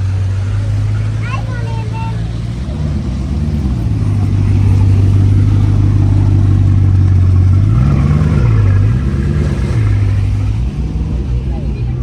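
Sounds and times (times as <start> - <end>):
car engine revving: 0.0 - 12.0
car engine running: 0.0 - 12.0.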